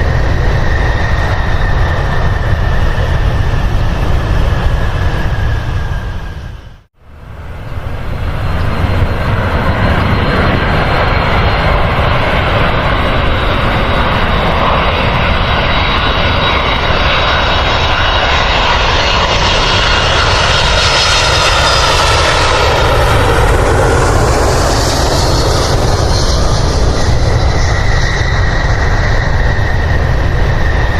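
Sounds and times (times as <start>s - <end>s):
airliner engines running: 0.0s - 30.9s.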